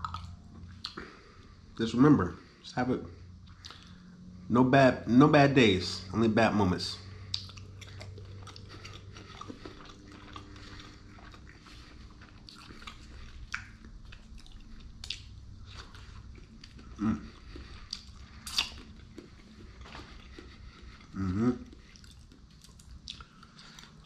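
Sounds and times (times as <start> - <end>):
person chewing sushi: 0.0 - 1.6, 3.4 - 4.0, 7.1 - 24.0.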